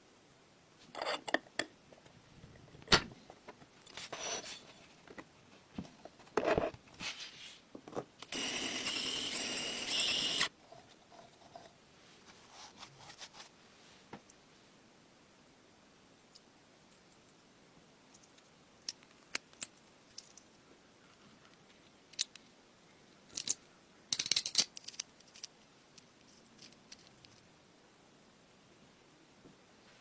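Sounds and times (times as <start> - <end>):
small parts clicking and scraping: 8.2 - 11.8, 18.1 - 20.6, 21.4 - 22.5, 23.2 - 27.5.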